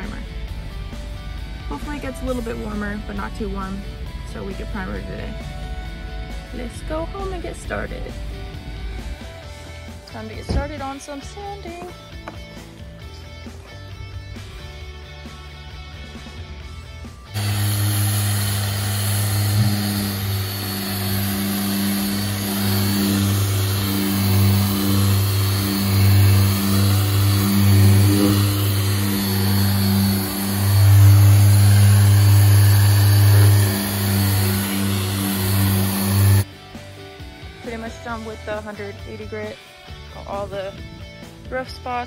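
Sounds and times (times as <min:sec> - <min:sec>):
orbital sander motor hum: 0:17.3 - 0:36.5.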